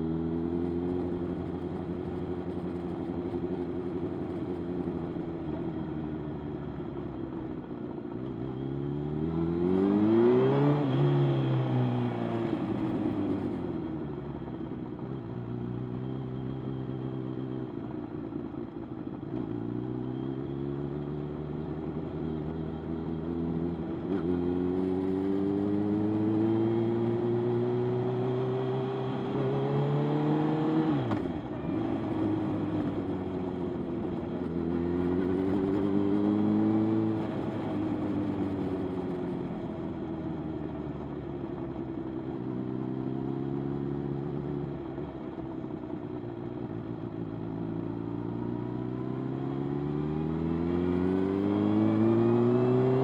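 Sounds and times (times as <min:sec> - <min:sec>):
motorcycle engine accelerating: 0:19.3 - 0:45.7, 0:47.0 - 0:53.0.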